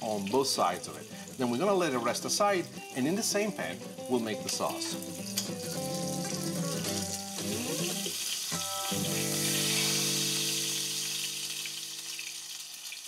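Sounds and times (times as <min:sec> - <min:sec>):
chicken sizzling in frying pan: 0:00.0 - 0:13.0.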